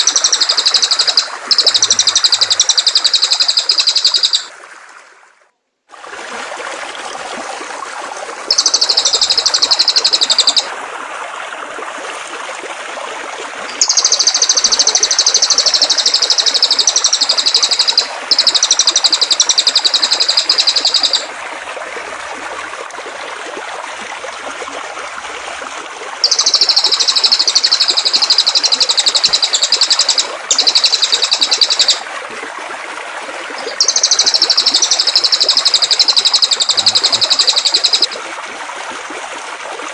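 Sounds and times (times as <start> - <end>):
songbird chirping trills: 0.0 - 4.5, 8.5 - 10.7, 13.7 - 21.3, 26.2 - 32.0, 33.6 - 38.2
flowing water rushing: 0.0 - 39.9.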